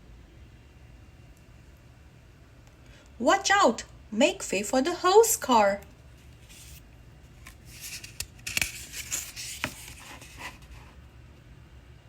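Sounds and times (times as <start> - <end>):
paper rustling: 6.2 - 6.8, 7.4 - 11.0
soft clicks of page turning: 7.4 - 10.6.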